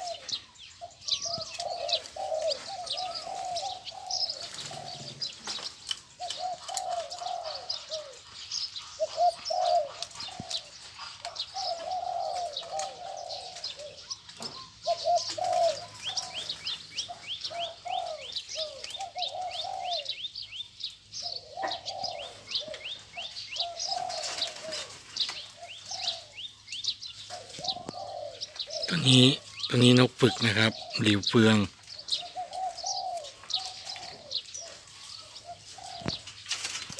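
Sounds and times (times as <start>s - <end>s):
doves cooing: 0.0s - 36.9s
small birds chirping: 0.0s - 36.9s.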